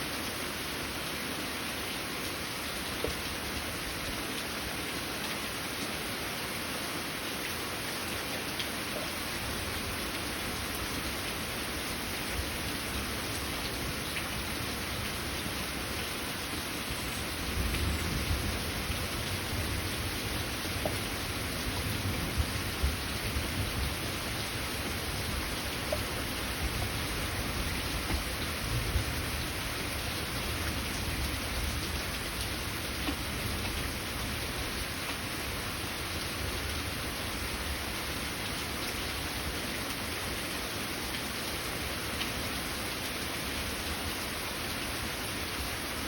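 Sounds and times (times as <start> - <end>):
heavy rain pouring: 0.0 - 46.0
low rumble of thunder: 17.3 - 34.3.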